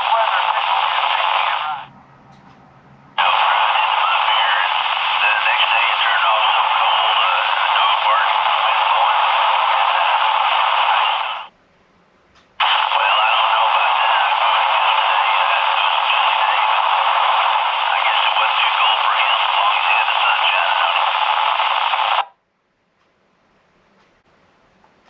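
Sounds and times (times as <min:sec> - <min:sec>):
static-filled radio transmission: 0:00.0 - 0:01.9, 0:03.2 - 0:11.5, 0:12.6 - 0:22.4.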